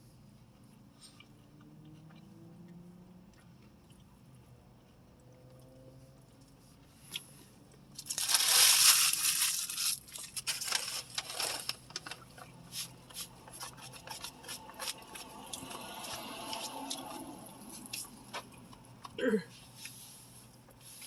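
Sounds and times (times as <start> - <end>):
chewing and mouth smacks: 0.6 - 6.5, 12.2 - 19.2
rustling: 8.1 - 13.3.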